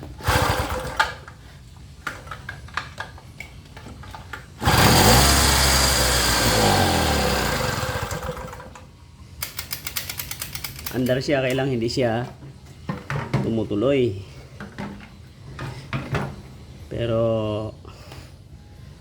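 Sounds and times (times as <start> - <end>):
small engine starting and dying: 0.2 - 1.3, 4.6 - 8.8.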